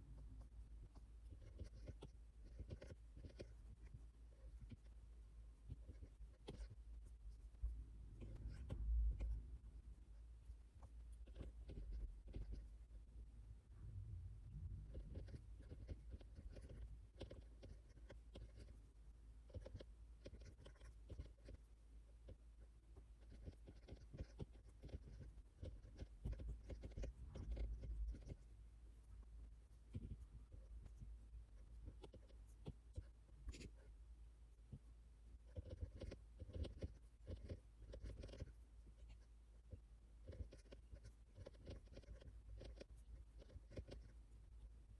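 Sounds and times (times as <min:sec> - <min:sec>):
steady low hum: 0:00.0 - 0:44.9
pen writing on paper: 0:01.3 - 0:03.6, 0:05.7 - 0:06.8, 0:08.2 - 0:09.3, 0:11.3 - 0:12.7, 0:14.9 - 0:18.8, 0:19.5 - 0:21.6, 0:23.2 - 0:28.4, 0:31.8 - 0:33.8, 0:35.5 - 0:39.2, 0:40.2 - 0:44.2.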